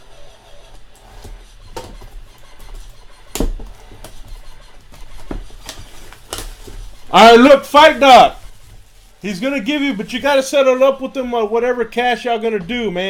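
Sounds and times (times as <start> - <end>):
faint rustling: 0.0 - 10.4.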